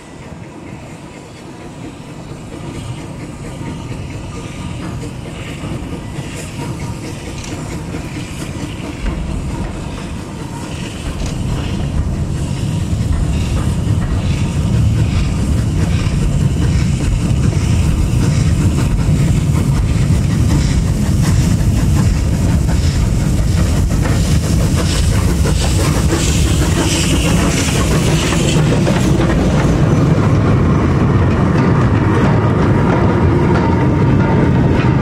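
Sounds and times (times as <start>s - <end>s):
train rumbling on rails: 0.0s - 35.0s.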